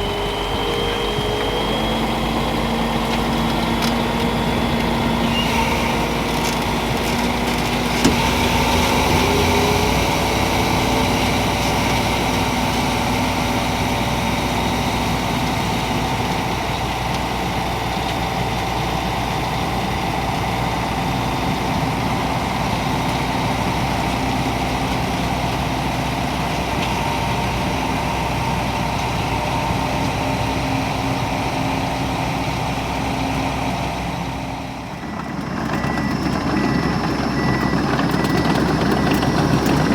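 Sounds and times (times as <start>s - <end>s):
steady high whine: 0.0s - 14.0s
snow groomer diesel engine running: 0.0s - 39.9s.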